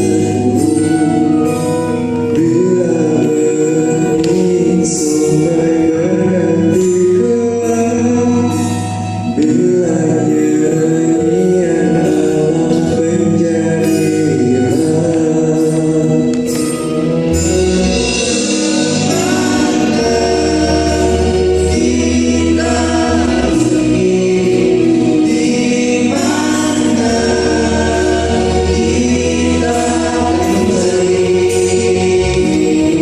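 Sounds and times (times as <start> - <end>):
group singing: 0.0 - 8.3, 17.3 - 33.0
bass line: 0.0 - 33.0
cymbals: 0.0 - 33.0.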